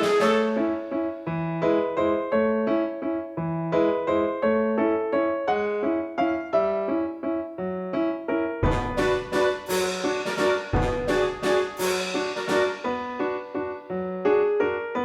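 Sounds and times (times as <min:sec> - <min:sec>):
bouncy keyboard melody: 0:00.0 - 0:02.2, 0:08.6 - 0:13.9.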